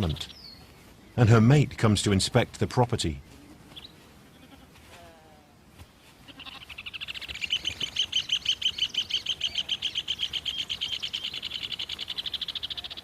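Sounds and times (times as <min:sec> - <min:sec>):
bird trilling call: 0:06.4 - 0:13.0.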